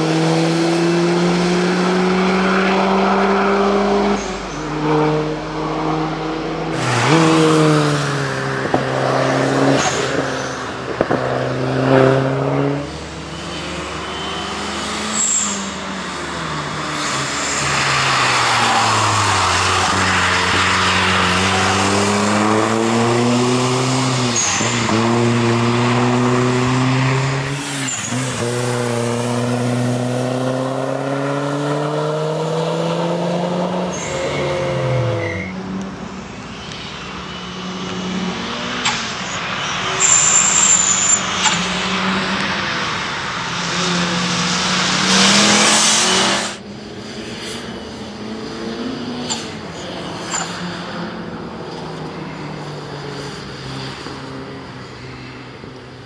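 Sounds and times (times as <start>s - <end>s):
car engine revving: 0.0s - 54.6s
tyre squeal: 13.3s - 22.9s, 27.6s - 28.8s, 33.9s - 35.7s, 38.8s - 41.6s.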